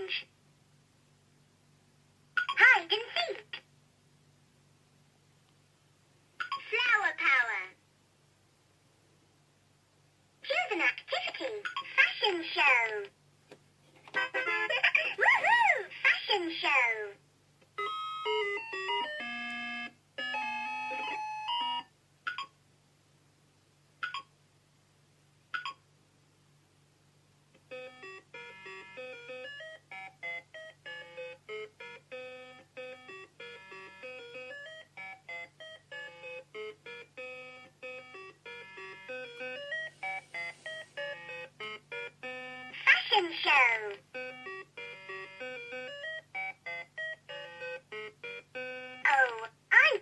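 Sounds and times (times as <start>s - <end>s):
toy beeping jingle: 17.8s - 22.5s, 24.0s - 24.3s, 25.6s - 25.8s, 27.7s - 42.8s
single electronic beeps: 25.6s - 25.8s.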